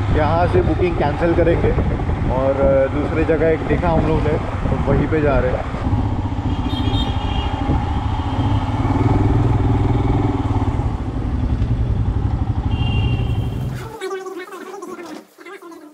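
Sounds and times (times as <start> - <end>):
motorcycle engine running: 5.8 - 13.8.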